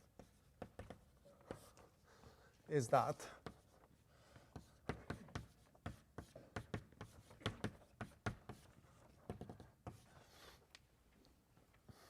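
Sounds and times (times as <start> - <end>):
chalk tapping on a blackboard: 0.0 - 1.8, 3.2 - 10.4.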